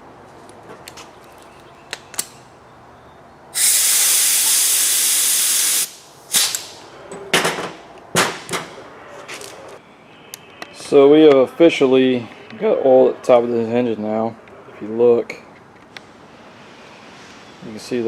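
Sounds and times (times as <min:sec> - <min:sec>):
compressed air hissing: 0:03.5 - 0:06.9.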